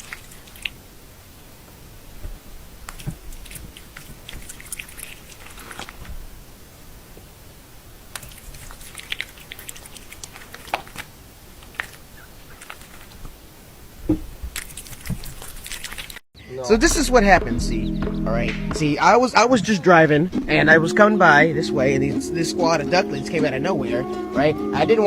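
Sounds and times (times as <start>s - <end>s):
animal chewing food: 0.0s - 0.8s, 2.8s - 6.1s, 8.1s - 13.3s, 14.1s - 16.2s
low thump: 14.1s - 14.5s, 16.7s - 19.1s.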